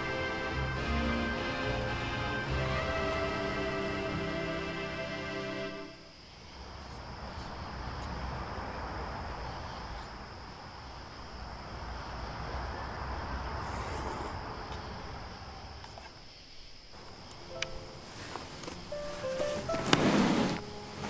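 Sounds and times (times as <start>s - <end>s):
background music: 0.0s - 6.1s, 17.5s - 21.0s
rushing outdoor noise: 0.0s - 16.2s, 16.8s - 21.0s.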